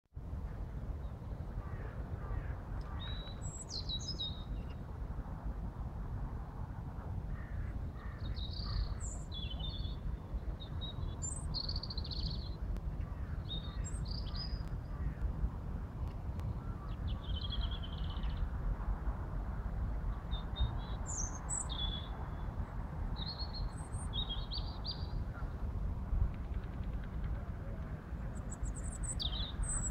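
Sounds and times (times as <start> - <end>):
songbirds chirping and trilling: 1.0 - 4.9, 7.4 - 15.3, 16.1 - 18.7, 20.0 - 25.7, 26.4 - 29.9.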